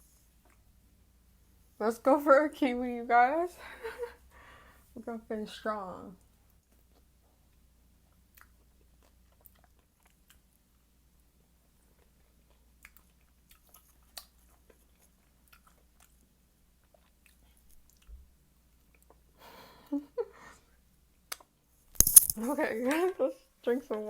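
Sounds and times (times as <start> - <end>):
wet chewing and mouth clicks: 6.6 - 10.9, 11.8 - 18.2.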